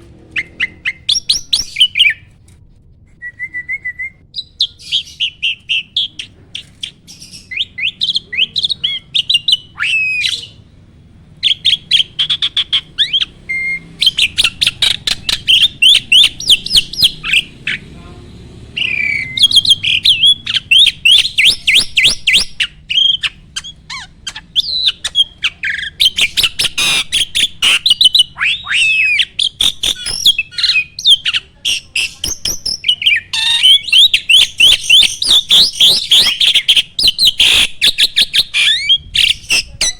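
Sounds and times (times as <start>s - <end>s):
starling singing: 0.0s - 2.3s, 4.3s - 39.9s.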